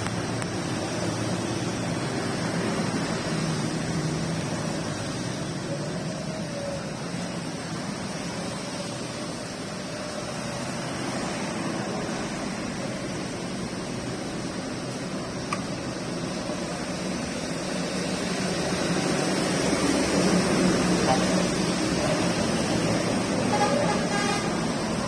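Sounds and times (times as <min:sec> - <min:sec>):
heavy rain: 0:00.0 - 0:25.0.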